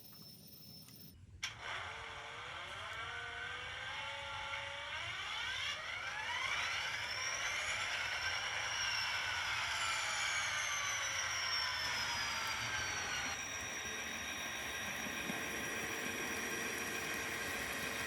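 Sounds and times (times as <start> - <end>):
mechanical whine rising in pitch: 2.0 - 18.0.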